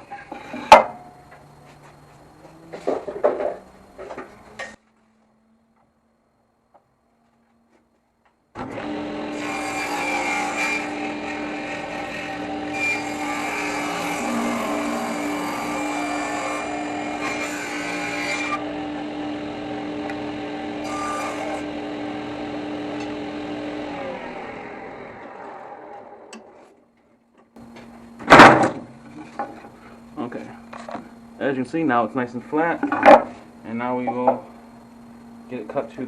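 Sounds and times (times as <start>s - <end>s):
power saw cutting wood: 8.6s - 26.6s.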